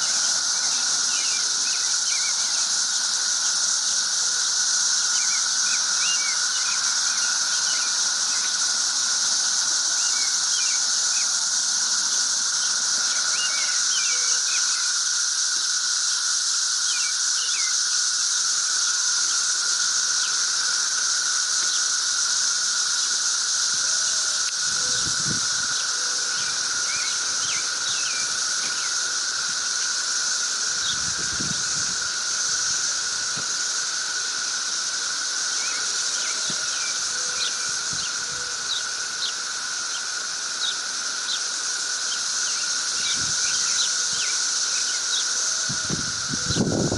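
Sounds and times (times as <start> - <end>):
cicada chorus buzzing: 0.0 - 46.9.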